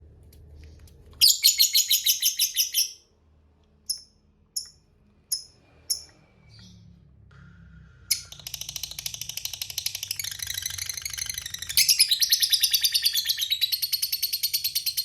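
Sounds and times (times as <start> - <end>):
sharp bird chirps: 1.2 - 3.0.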